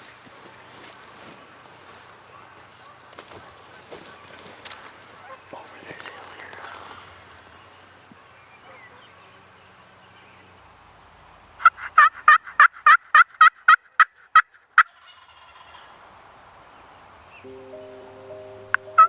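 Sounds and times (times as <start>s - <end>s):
turkey yelping: 11.6s - 13.8s, 14.8s - 15.9s.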